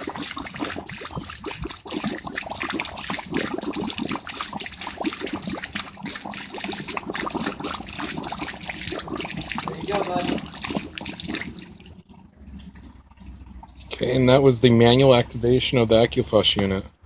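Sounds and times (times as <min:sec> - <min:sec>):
water trickling and splashing: 0:00.0 - 0:14.6.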